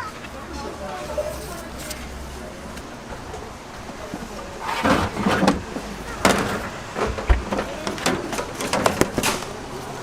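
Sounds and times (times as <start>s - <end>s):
sharp knocks and clattering: 4.1s - 9.6s.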